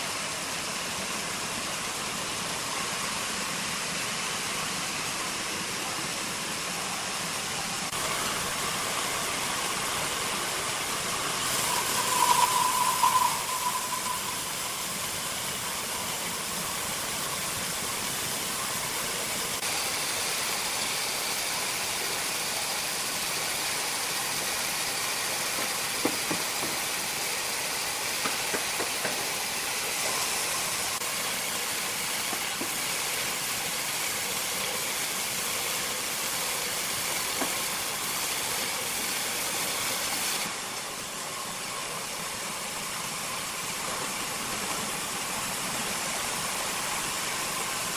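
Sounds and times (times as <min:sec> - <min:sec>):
sawmill machinery running: 0:00.1 - 0:47.9
ringing whine: 0:09.6 - 0:16.7.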